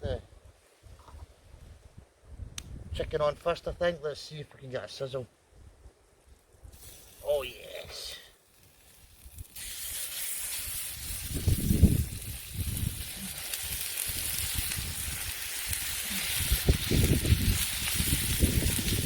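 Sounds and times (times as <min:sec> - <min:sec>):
meat sizzling on a grill: 0:06.7 - 0:19.0.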